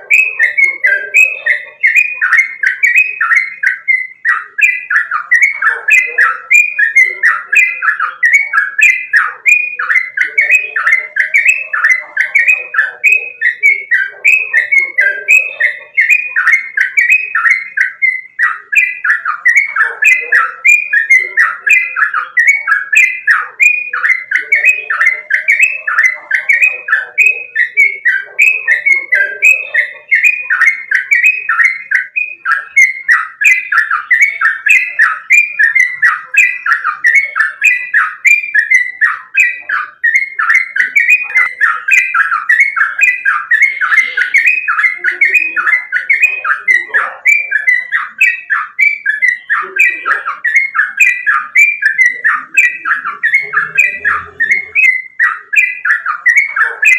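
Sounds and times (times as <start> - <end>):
bird chirping fast notes: 0.0 - 56.9
faint lower bird calls: 0.0 - 56.9.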